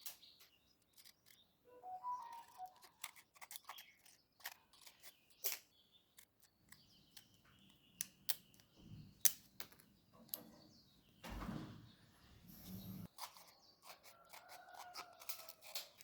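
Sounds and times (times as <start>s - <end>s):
scissors snipping: 13.2s - 16.0s.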